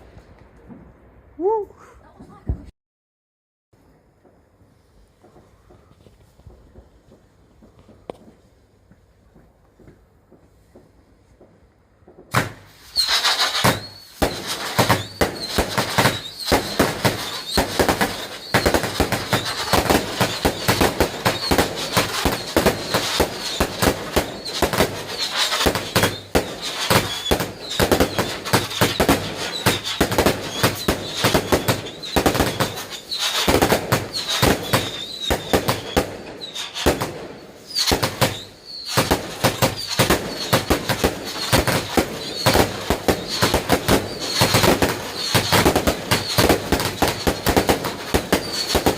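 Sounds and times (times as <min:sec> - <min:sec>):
fireworks bangs and crackles: 0:03.8 - 0:48.9
fireworks squealing whistles: 0:12.3 - 0:48.9.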